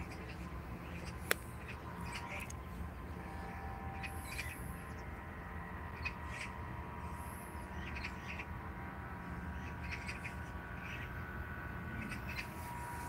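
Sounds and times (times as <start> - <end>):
birds chirping: 0.0 - 13.0
low background rumble: 0.0 - 13.0.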